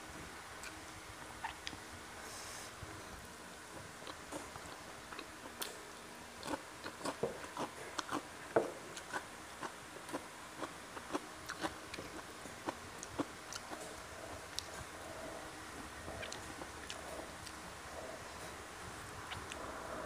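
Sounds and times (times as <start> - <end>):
person chewing crunchy food: 6.4 - 8.3, 8.9 - 15.4, 16.1 - 18.1.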